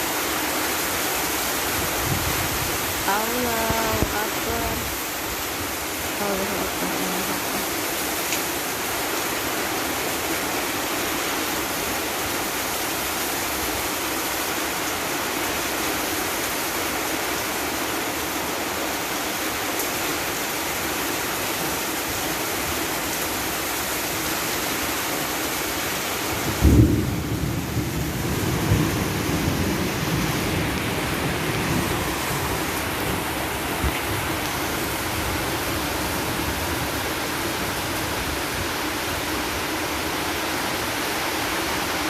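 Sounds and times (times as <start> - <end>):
heavy rain and wind: 0.0 - 42.0
thunder clap and rumble: 26.4 - 34.6.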